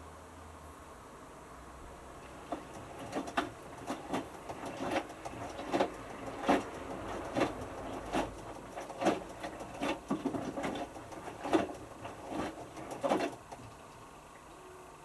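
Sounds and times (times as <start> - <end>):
washing machine hum: 1.5 - 15.0
washing machine drum tumbling: 1.8 - 13.7
wet clothes thumping: 2.2 - 13.4.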